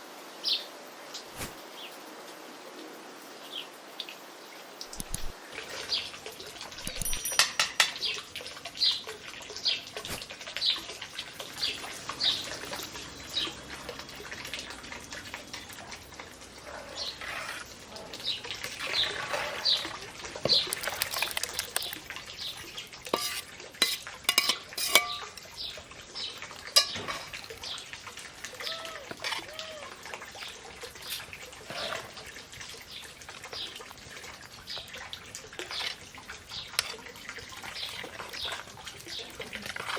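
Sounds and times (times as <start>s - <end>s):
metal utensils clinking on pots: 6.7s - 8.3s, 22.8s - 25.7s, 26.7s - 27.7s, 30.9s - 32.1s.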